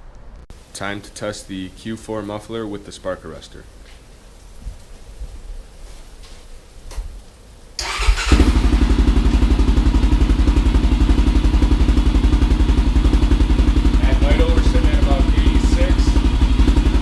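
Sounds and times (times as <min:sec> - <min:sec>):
engine cranking: 0:07.8 - 0:08.7
quad engine idling: 0:07.8 - 0:17.0.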